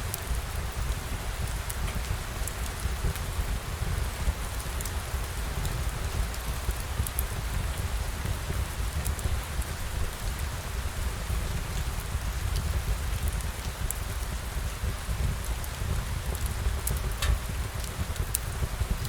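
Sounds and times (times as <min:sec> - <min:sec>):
steady rain: 0:00.0 - 0:19.0
raindrops ticking: 0:11.7 - 0:19.0.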